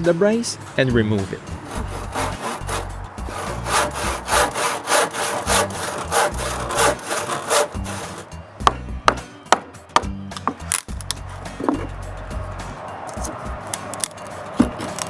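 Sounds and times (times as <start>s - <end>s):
hand saw cutting wood: 1.6s - 8.3s.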